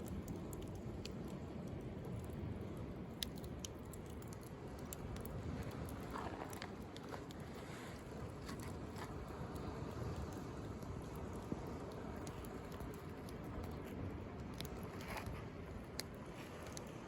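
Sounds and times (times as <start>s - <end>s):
wood bonfire crackling: 0.0s - 17.0s
sea waves: 5.3s - 12.2s.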